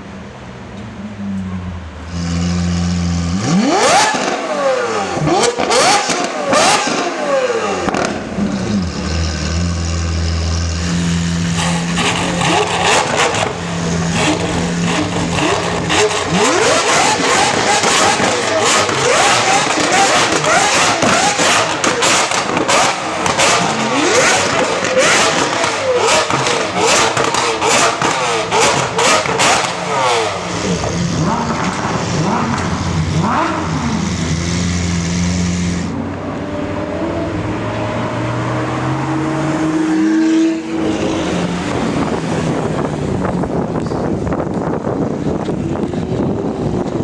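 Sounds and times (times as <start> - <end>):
car engine revving: 0.9 - 47.0
exhaust crackles and pops: 7.8 - 34.0.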